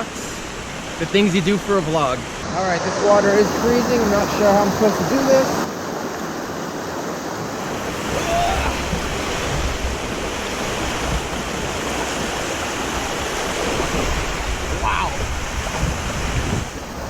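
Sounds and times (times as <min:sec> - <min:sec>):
creek water rushing over rock: 0:00.0 - 0:17.0
wind rumbling on microphone: 0:07.5 - 0:17.0.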